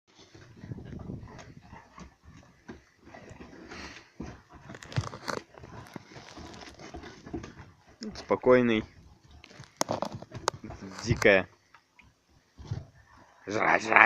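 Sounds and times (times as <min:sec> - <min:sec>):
bone crunching: 0:04.7 - 0:06.8.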